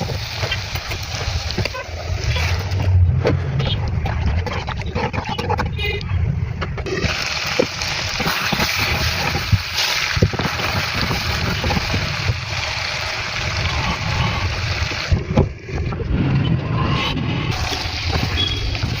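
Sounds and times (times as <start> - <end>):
chicken sizzling in a pan: 6.9 - 15.2.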